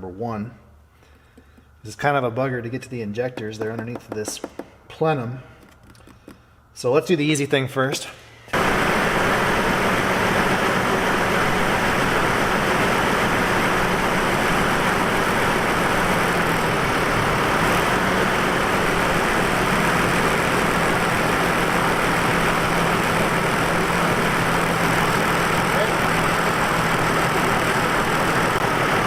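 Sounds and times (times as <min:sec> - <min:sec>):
misfiring car engine idling: 0:08.5 - 0:29.0.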